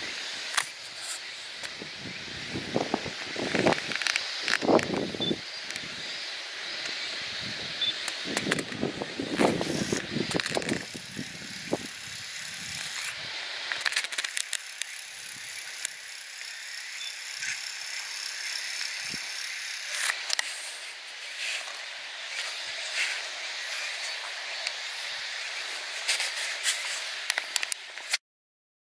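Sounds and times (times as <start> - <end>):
high-pitched hiss: 0.0 - 28.2
scattered clicks: 7.8 - 11.0, 12.5 - 17.6, 23.8 - 28.2.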